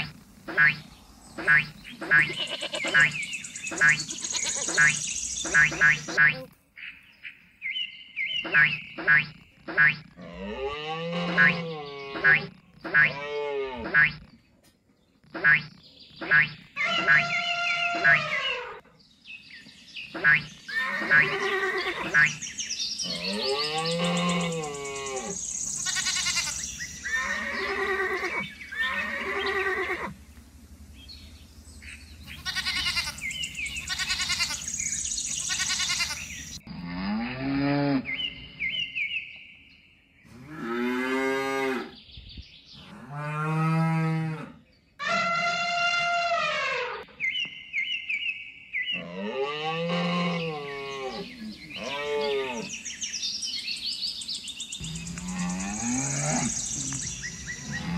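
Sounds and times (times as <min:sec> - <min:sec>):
animal calls: 0:00.0 - 0:06.5, 0:08.3 - 0:14.4, 0:15.3 - 0:18.9, 0:20.1 - 0:30.2, 0:31.8 - 0:36.6, 0:54.8 - 0:57.9
cow mooing: 0:10.2 - 0:12.4, 0:23.0 - 0:25.4, 0:49.0 - 0:52.8, 0:57.5 - 0:57.9.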